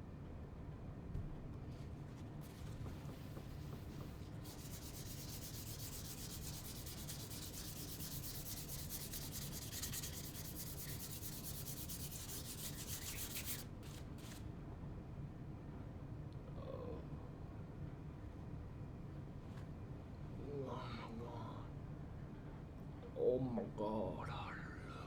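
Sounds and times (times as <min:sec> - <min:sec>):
rubbing on wood surface: 0:02.4 - 0:13.7.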